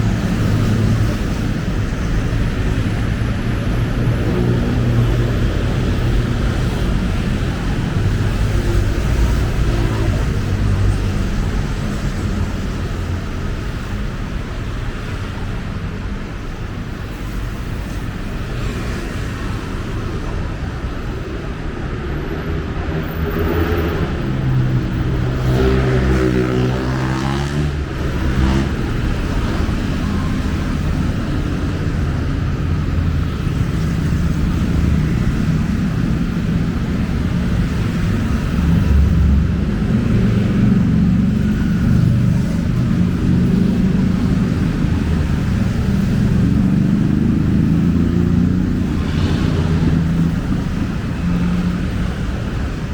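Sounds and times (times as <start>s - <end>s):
city road traffic rumble: 0.0s - 52.9s.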